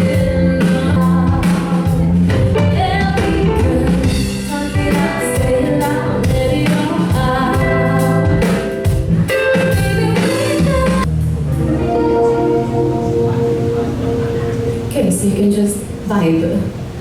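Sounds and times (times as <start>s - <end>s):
instrumental accompaniment: 0.0s - 17.0s.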